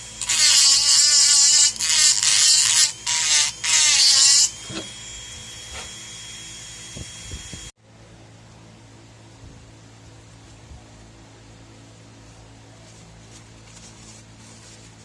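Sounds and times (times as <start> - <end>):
rotary tool grinding: 0.0 - 7.7
faint high whine: 2.8 - 15.0
low hum: 4.5 - 15.0.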